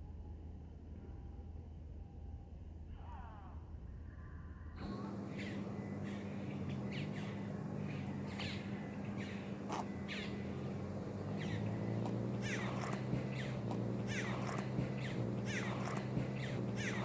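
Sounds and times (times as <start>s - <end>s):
birds calling: 4.8s - 17.0s
steady low hum: 4.8s - 17.0s.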